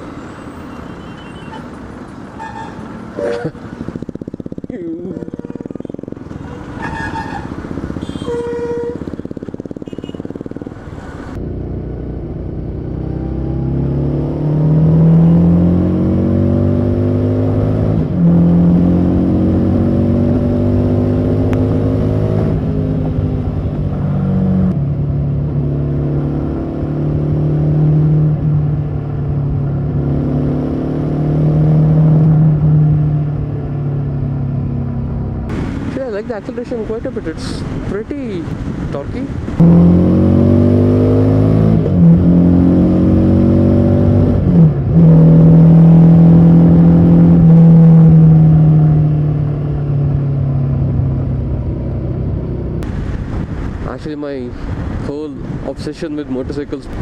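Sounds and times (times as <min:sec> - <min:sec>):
vehicle horns: 0:00.4 - 0:03.7, 0:05.1 - 0:10.4
motorcycle engine accelerating: 0:03.2 - 0:36.0, 0:37.5 - 0:53.7.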